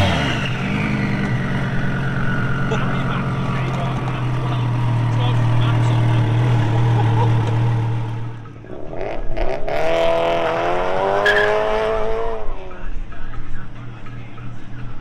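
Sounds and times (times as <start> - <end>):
car engine running: 0.0 - 10.6
car accelerating hard: 0.0 - 12.7.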